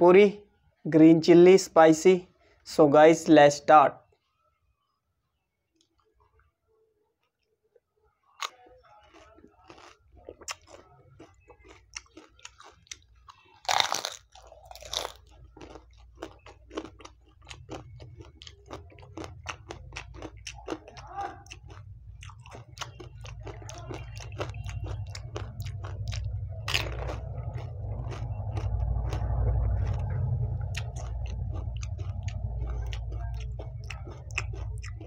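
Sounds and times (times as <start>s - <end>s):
crunchy chewing: 8.4s - 35.0s
loud crunchy bites: 8.4s - 35.0s.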